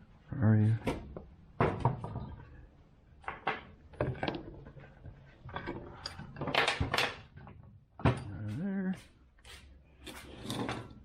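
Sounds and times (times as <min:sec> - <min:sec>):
metal tools clinking and rattling: 0:05.4 - 0:07.2.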